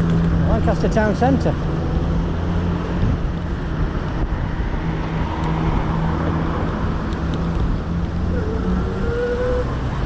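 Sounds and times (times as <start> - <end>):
road traffic engine hum: 0.0 - 10.0.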